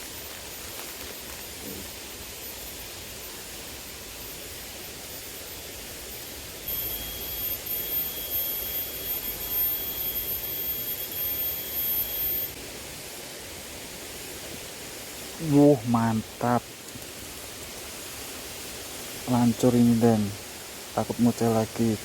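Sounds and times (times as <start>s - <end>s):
high-pitched steady whine: 0.0s - 22.0s.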